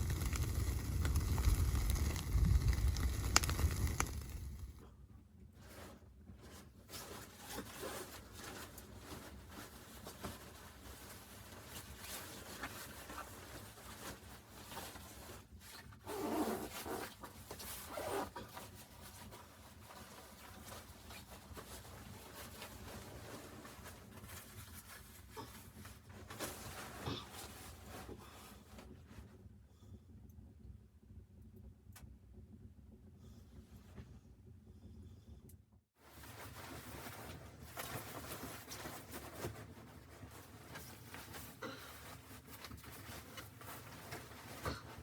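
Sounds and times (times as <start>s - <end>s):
rustling and scraping handling noises: 5.5s - 29.4s, 36.0s - 45.0s.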